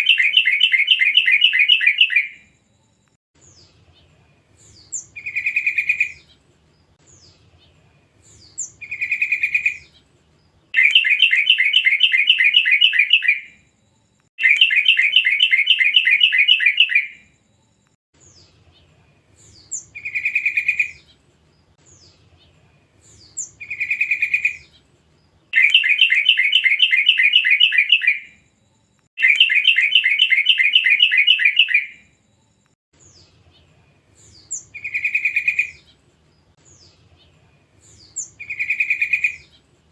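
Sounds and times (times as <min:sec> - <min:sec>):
bird calling and chattering: 0:00.0 - 0:02.4, 0:08.6 - 0:09.9, 0:10.8 - 0:13.5, 0:14.4 - 0:17.2, 0:25.6 - 0:28.3, 0:29.2 - 0:32.0, 0:34.4 - 0:35.8, 0:38.0 - 0:39.5.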